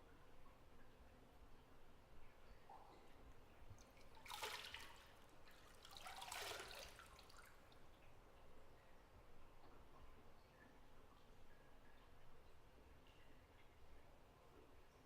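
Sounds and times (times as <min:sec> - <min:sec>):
bathwater splashing: 0:03.8 - 0:07.5.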